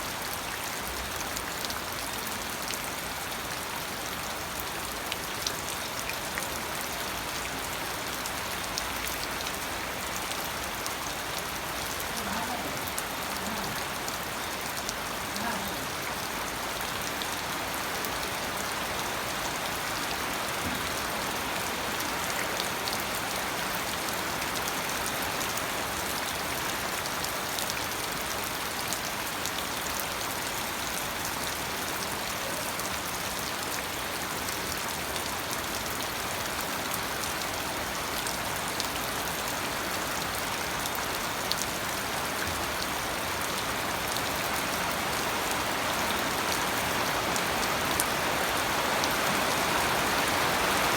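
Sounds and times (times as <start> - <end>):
rain falling: 0.0 - 50.9
raindrops ticking on surface: 0.0 - 50.9.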